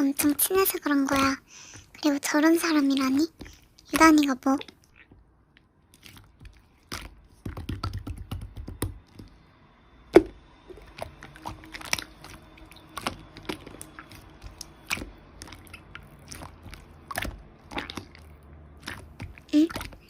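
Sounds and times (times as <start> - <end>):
slime squished by hand: 3.0 - 9.4, 10.2 - 20.0
sticky crackles and popping clicks: 3.0 - 9.4.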